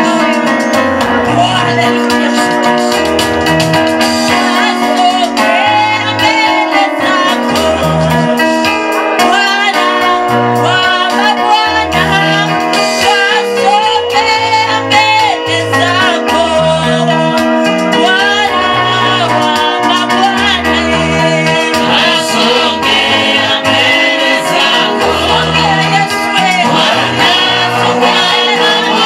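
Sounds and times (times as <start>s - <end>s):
sustained keyboard chords: 0.0s - 29.0s
bass line: 0.8s - 4.3s, 18.4s - 29.0s
woman singing: 4.3s - 8.2s, 9.2s - 21.6s, 24.9s - 29.0s.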